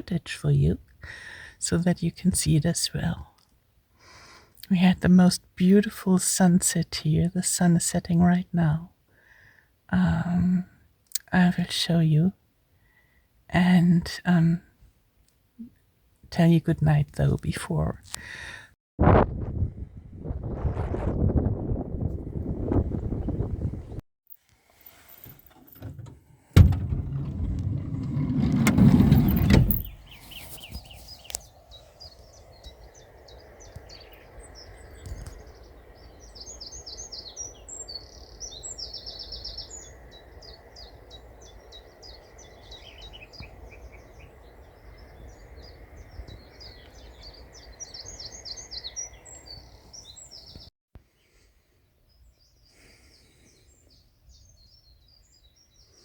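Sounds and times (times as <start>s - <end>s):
songbirds chirping: 0.0s - 18.1s, 24.8s - 56.0s.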